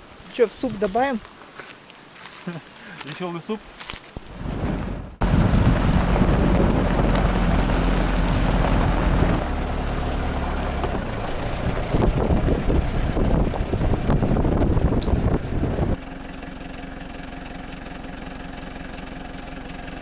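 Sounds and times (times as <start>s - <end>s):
wind rumbling on microphone: 3.8s - 16.0s
engine running: 4.2s - 20.0s.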